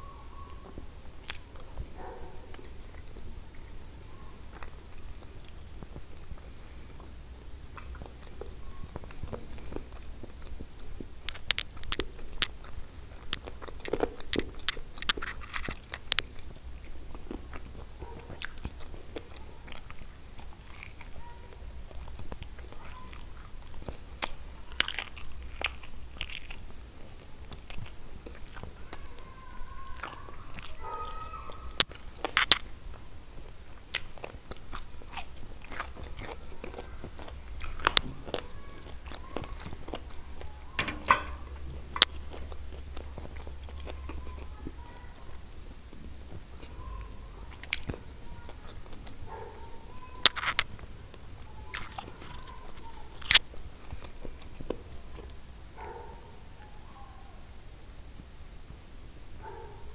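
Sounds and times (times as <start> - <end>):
chewing and biting: 0.4 - 56.0
wet mouth clicks: 7.8 - 17.7
low steady hum: 31.5 - 59.3.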